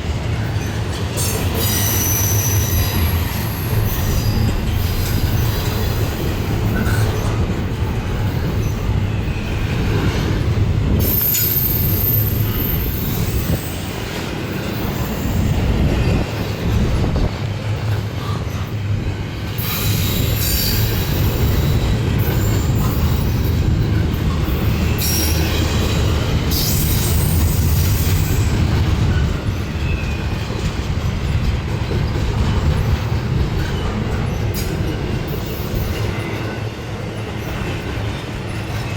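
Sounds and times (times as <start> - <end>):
freight train wheels rumbling: 0.0 - 38.9
high-pitched wheel squeal: 1.6 - 4.4.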